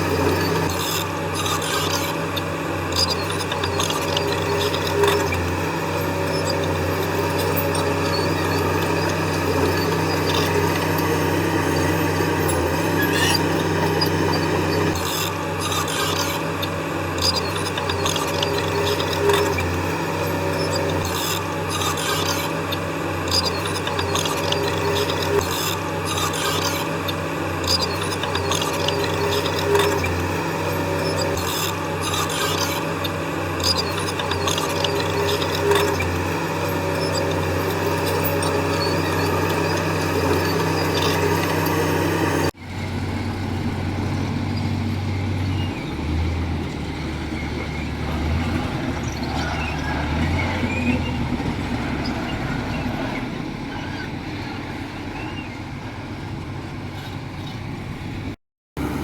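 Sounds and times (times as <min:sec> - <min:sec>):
steel tracks scraping and clanking: 0:00.0 - 0:42.5
heavy diesel machinery running: 0:00.0 - 0:59.0.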